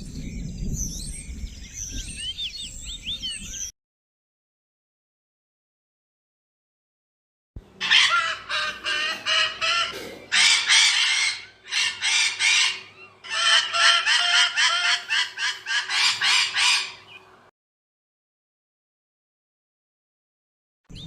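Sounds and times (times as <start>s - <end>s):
bird calling rapidly: 7.7s - 17.4s.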